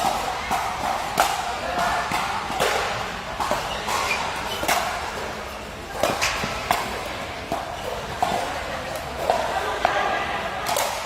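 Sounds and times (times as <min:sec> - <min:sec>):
ball striking and bouncing: 0:00.0 - 0:09.5
faint background voices: 0:00.0 - 0:11.0.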